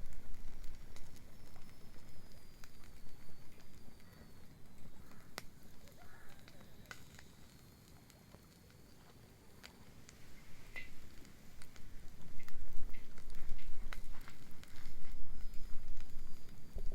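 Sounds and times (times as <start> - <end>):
bonfire crackling: 0.0 - 16.9
sharp pops from fire: 0.0 - 16.9.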